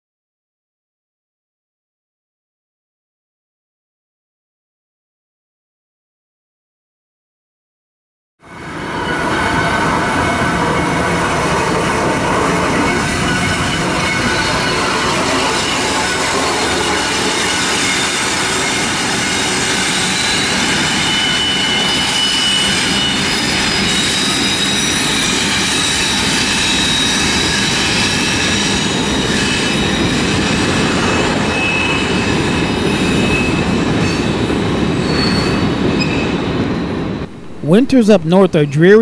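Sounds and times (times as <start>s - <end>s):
high wheel squeals: 8.4s - 37.4s
train wheels on rail: 8.4s - 37.7s
diesel locomotives passing: 8.4s - 38.8s.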